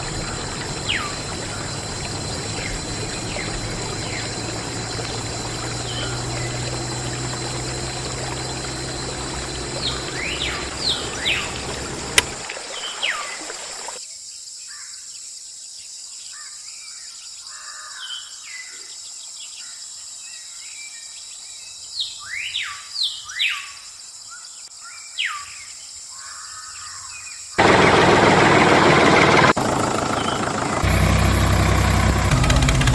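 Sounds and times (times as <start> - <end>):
loud steady rushing noise: 0.0 - 12.4, 27.6 - 32.9
birds chirping: 0.0 - 14.0, 27.6 - 31.9
water pouring: 0.0 - 14.0
water pump humming: 0.0 - 14.0, 27.6 - 32.9.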